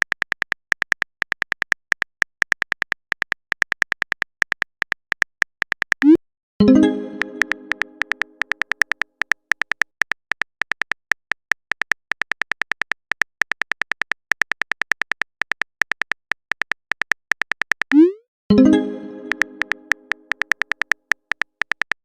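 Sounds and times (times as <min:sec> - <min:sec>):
phone keyboard typing clicks: 0:00.0 - 0:22.0
chime: 0:06.6 - 0:08.0, 0:18.5 - 0:20.1.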